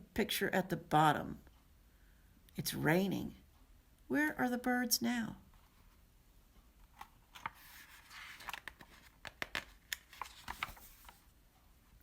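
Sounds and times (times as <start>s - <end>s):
paper rustling: 6.8s - 11.3s.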